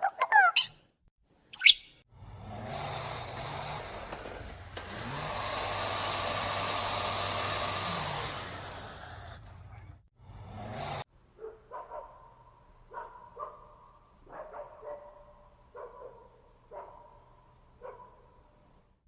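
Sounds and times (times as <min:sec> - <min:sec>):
lyrebird mimicking dog barks: 0:00.0 - 0:00.8
loud hissing motor-like noise: 0:02.2 - 0:11.1.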